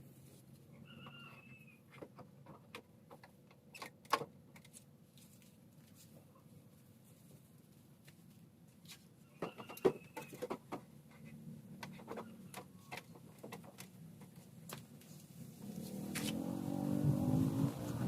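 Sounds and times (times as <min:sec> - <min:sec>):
sharp clicks and light knocks: 0:01.9 - 0:04.8, 0:08.9 - 0:15.2.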